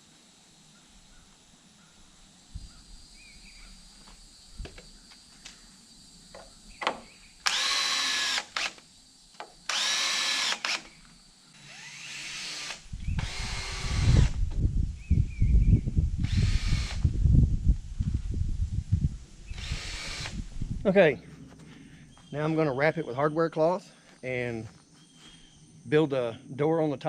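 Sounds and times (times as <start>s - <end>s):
power drill driving screws: 7.4s - 8.8s, 9.7s - 11.0s, 11.6s - 14.4s, 16.2s - 17.0s, 19.5s - 20.4s.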